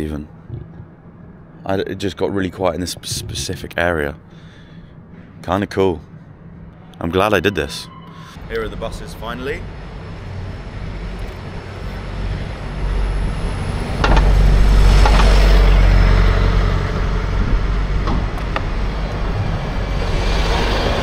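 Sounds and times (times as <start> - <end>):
road traffic: 3.2 - 21.0
heavy engine rumbling: 7.8 - 21.0.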